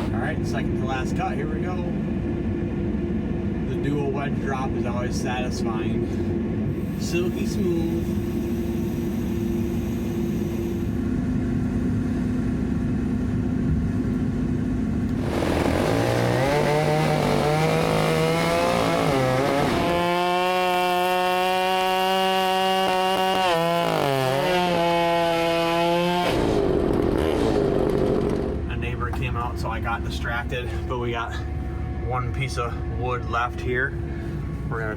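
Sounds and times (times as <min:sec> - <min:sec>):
engine idling: 0:00.0 - 0:20.0, 0:26.5 - 0:34.9
chainsaw cutting tree trunk: 0:15.0 - 0:28.6.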